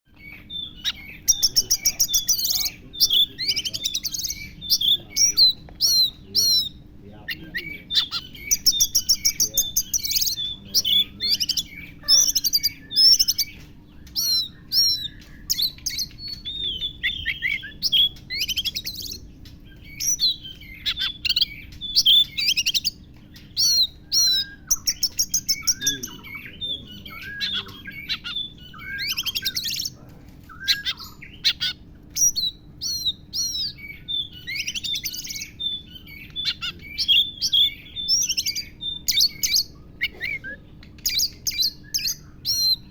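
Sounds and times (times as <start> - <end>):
bird singing chirps and trills: 0.1 - 42.9.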